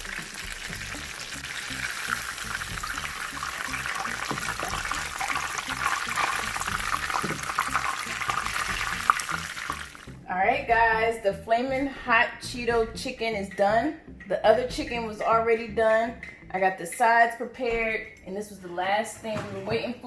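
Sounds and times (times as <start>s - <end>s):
chicken sizzling in hot oil: 0.0s - 10.2s.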